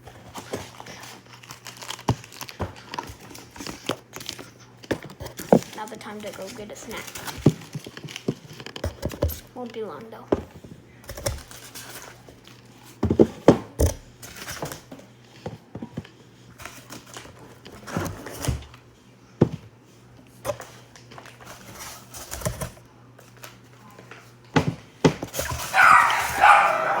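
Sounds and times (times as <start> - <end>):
dog barking: 25.6 - 27.0.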